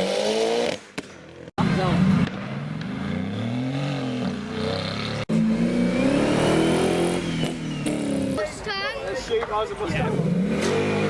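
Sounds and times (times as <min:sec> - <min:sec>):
car engine revving: 0:00.0 - 0:08.4, 0:09.9 - 0:11.0
car engine pulling away: 0:01.6 - 0:08.4, 0:09.9 - 0:11.0.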